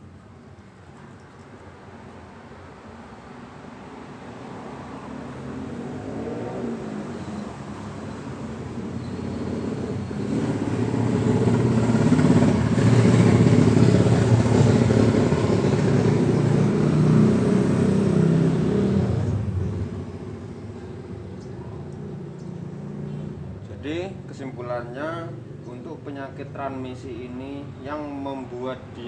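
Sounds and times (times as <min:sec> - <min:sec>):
motor vehicle engine running: 0:08.5 - 0:24.5.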